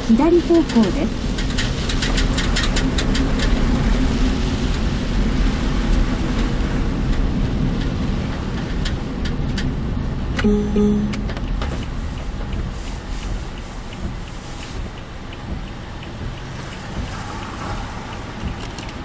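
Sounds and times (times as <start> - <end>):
tyre and rain noise: 0.0 - 10.4, 11.4 - 19.0
short tone: 10.4 - 11.6
sharp ticks: 10.4 - 19.0.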